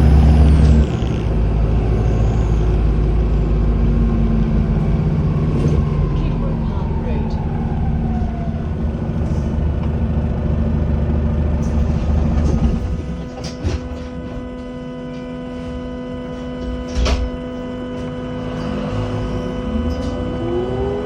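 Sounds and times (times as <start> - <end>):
bus engine rumble: 0.0 - 21.0
bus motor whine: 0.0 - 21.0.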